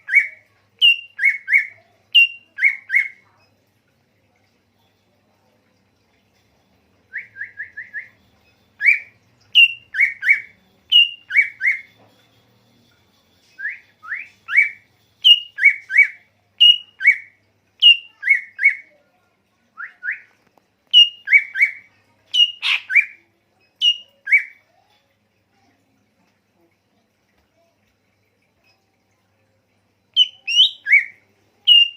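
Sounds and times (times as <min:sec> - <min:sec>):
songbird whistled chirps: 0:00.0 - 0:03.4, 0:07.0 - 0:19.0, 0:19.7 - 0:24.8, 0:30.1 - 0:31.9.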